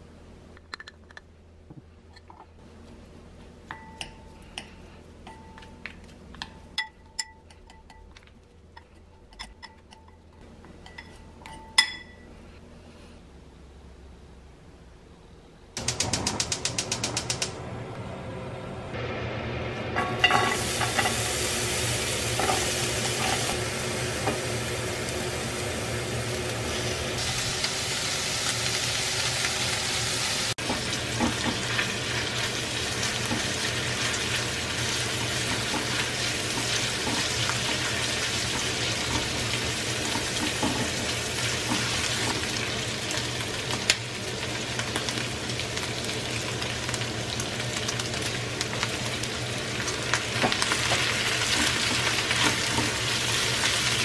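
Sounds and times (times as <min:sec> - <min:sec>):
food sizzling in frying pan: 0:19.0 - 0:54.0.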